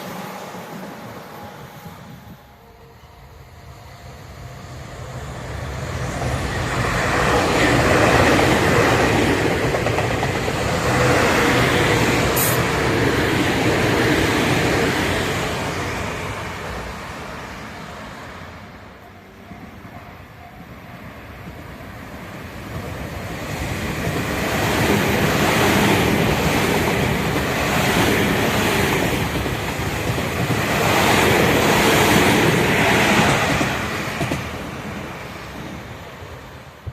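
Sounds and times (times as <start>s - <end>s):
train wheels on rail: 4.0s - 36.9s.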